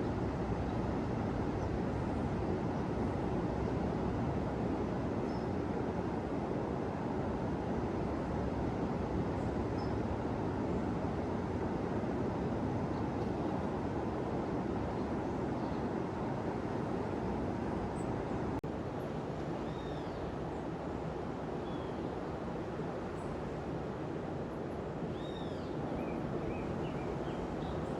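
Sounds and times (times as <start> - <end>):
faint bird chirps: 19.6 - 20.2, 25.2 - 27.9.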